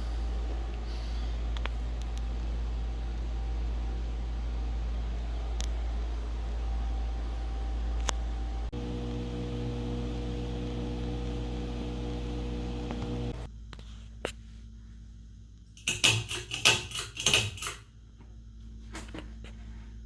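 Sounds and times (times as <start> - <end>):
ceiling fan motor humming: 0.0 - 13.5.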